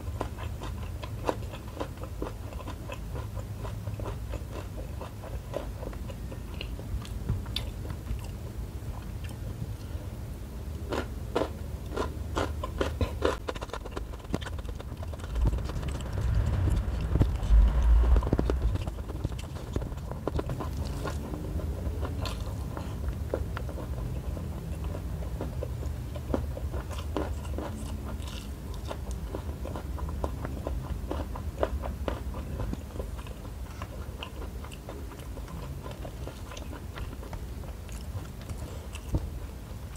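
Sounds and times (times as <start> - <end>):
close chewing with mouth clicks: 0.0 - 10.0, 10.8 - 39.9
low rumble: 13.7 - 22.4.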